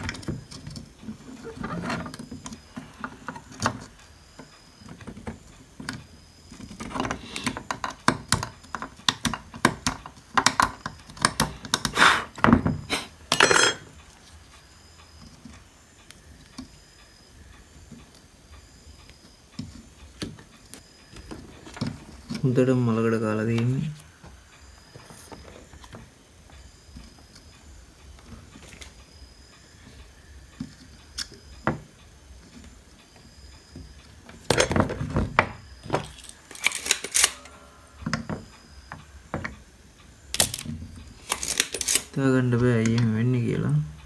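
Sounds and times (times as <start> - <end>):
tools and parts clicking on workbench: 0.0 - 14.1, 19.0 - 22.5, 33.7 - 39.6, 40.4 - 43.1.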